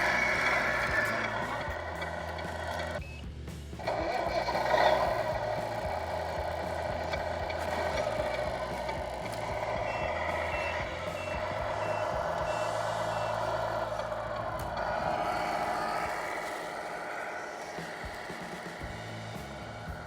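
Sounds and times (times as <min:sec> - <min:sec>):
truck engine sound from speaker: 0:00.0 - 0:20.0
reversing beeps: 0:03.0 - 0:03.3, 0:07.8 - 0:16.1.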